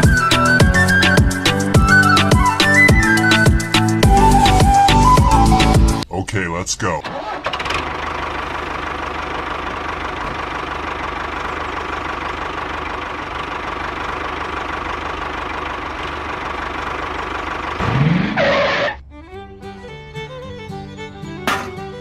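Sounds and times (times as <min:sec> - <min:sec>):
small engine knocking: 0:07.6 - 0:17.8.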